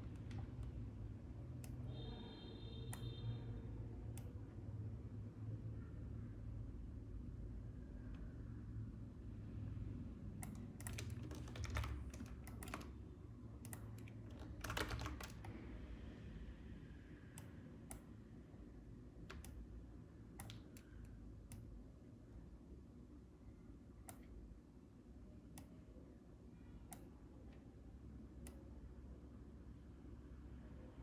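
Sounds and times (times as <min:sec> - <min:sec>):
computer keyboard clicks: 0:00.0 - 0:00.8, 0:10.4 - 0:13.0, 0:13.6 - 0:15.6, 0:19.2 - 0:19.6, 0:20.4 - 0:21.7.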